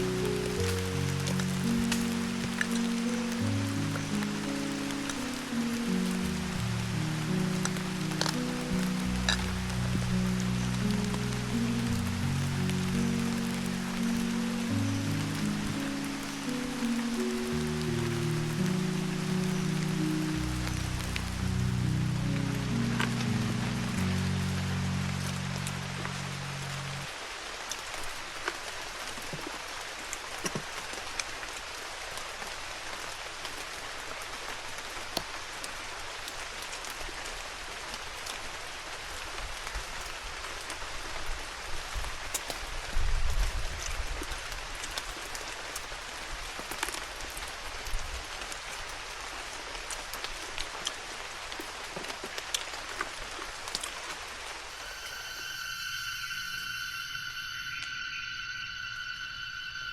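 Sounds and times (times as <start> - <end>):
raindrops ticking on surfaces: 0.0 - 57.8
steady rain falling: 0.0 - 59.9
low rumble: 3.6 - 16.9, 17.5 - 27.2.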